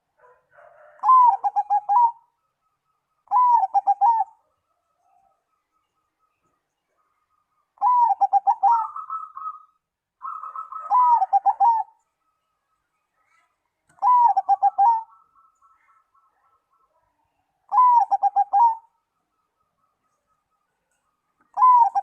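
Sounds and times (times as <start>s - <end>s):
dove cooing with purring trill: 0.0s - 2.4s, 3.2s - 5.4s, 7.8s - 12.0s, 13.9s - 16.9s, 17.7s - 19.0s, 21.5s - 22.0s.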